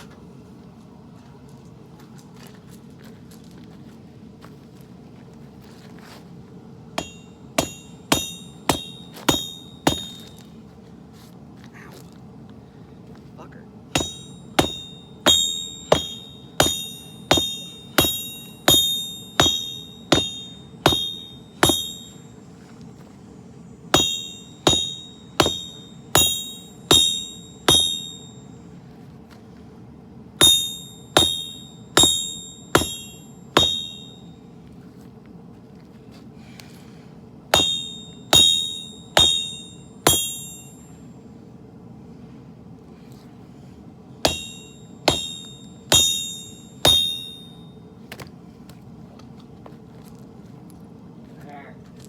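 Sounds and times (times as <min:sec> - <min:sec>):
steady low hum: 0:00.0 - 0:52.0
hammer striking steel on anvil: 0:07.0 - 0:10.4, 0:14.0 - 0:22.3, 0:23.9 - 0:28.5, 0:30.4 - 0:34.3, 0:37.5 - 0:40.9, 0:44.2 - 0:47.7.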